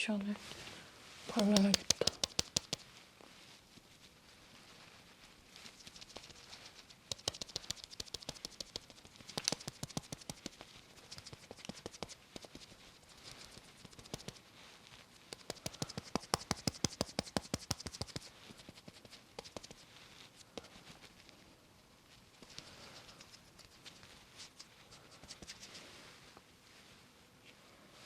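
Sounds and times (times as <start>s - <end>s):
puff patting against face: 1.3s - 2.9s, 5.8s - 14.5s, 15.2s - 21.0s, 22.4s - 25.8s.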